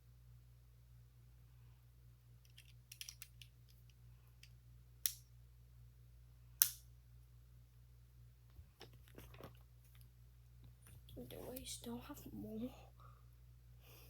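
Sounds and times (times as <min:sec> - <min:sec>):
plastic bricks clicking: 0:02.5 - 0:03.5.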